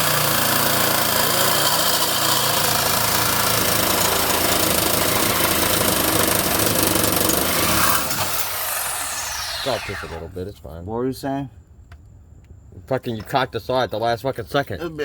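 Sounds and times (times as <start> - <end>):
power saw cutting metal pipe: 0.0 - 10.3.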